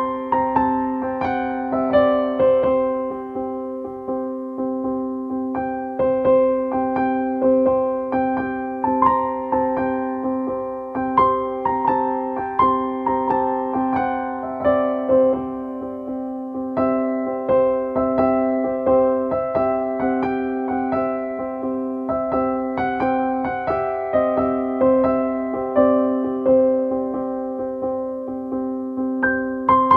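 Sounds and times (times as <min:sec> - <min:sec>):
gentle piano melody: 0:00.0 - 0:29.9.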